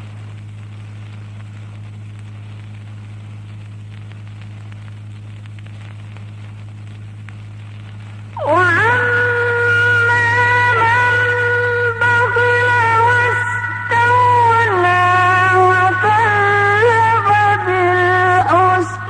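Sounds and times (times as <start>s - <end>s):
faint hiss and crackle: 0.0s - 19.0s
low electrical hum: 0.0s - 19.0s
person reciting drawn-out note: 8.4s - 19.0s.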